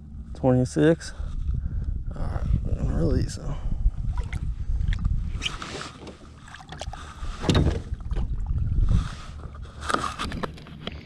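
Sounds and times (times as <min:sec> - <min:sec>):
low wind rumble: 0:00.0 - 0:11.0
water splashing: 0:04.1 - 0:05.1, 0:05.8 - 0:08.7.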